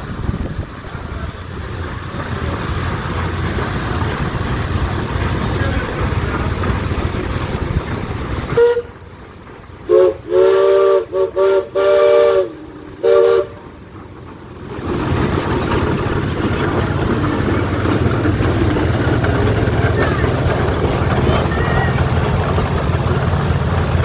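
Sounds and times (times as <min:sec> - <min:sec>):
engine rumble: 0:00.0 - 0:24.0
steam whistle toots: 0:08.5 - 0:09.0, 0:09.9 - 0:13.6.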